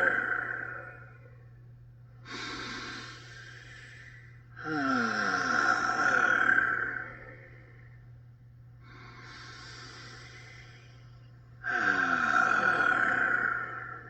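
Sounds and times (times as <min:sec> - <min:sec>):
steady low hum: 0:00.0 - 0:14.0
man breathing in deeply: 0:02.2 - 0:05.4, 0:08.8 - 0:14.0.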